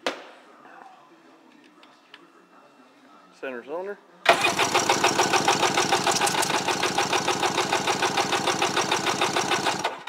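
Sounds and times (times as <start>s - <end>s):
engine cranking on starter: 4.3s - 10.0s.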